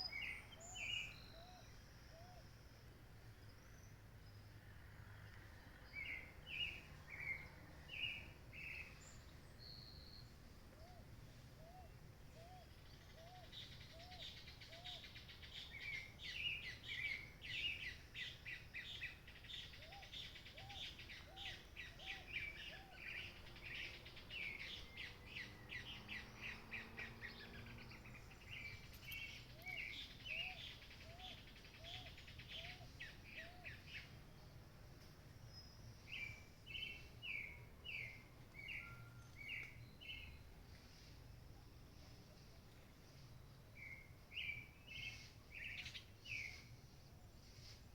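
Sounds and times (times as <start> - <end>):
many birds chirping: 12.8 - 34.2.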